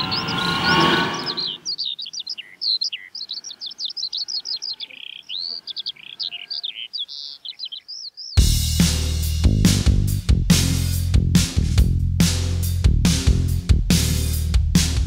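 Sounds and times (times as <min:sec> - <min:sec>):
whooshing noise: 0:00.0 - 0:01.6
songbirds chirping: 0:00.0 - 0:08.4.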